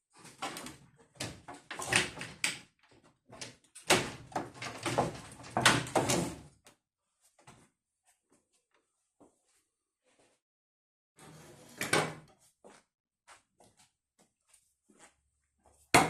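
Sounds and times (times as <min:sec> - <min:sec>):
hard parts clattering and knocking: 0:03.3 - 0:06.5.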